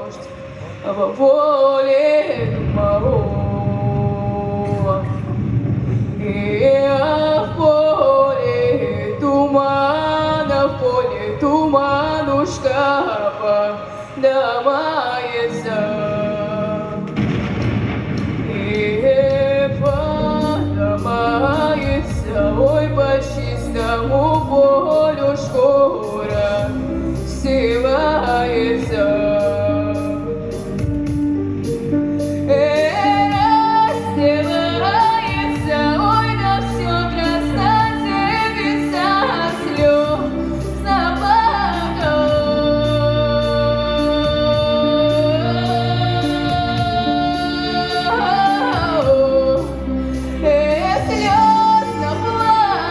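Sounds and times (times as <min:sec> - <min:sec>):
woman singing: 0:00.0 - 0:05.5, 0:06.2 - 0:17.2, 0:18.3 - 0:52.9
backing track with bass and beat: 0:17.0 - 0:52.9.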